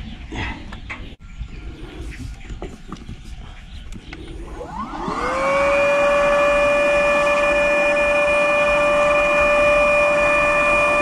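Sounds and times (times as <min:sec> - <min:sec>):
electric air pump whining: 0:04.3 - 0:11.0.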